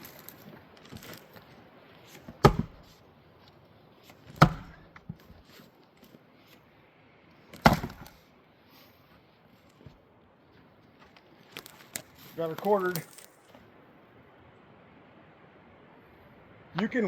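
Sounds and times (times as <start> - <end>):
splitting tool striking wood: 2.2 - 2.9, 4.2 - 5.3, 7.6 - 8.2.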